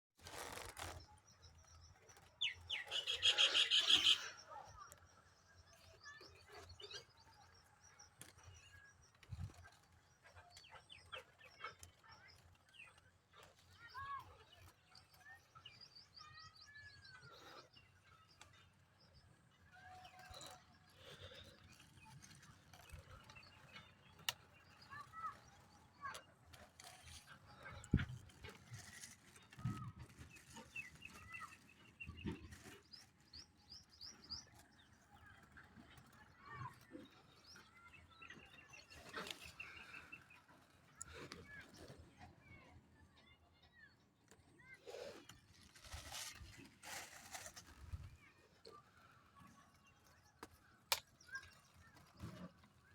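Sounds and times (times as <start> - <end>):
small birds chirping: 0.8 - 52.9
birds chirping and whistling: 2.4 - 4.3.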